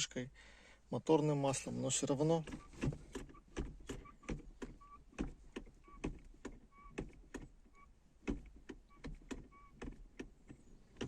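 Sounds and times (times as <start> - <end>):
gear lever creaking: 2.3 - 7.6
gear lever knocks: 2.3 - 7.6, 8.2 - 11.0.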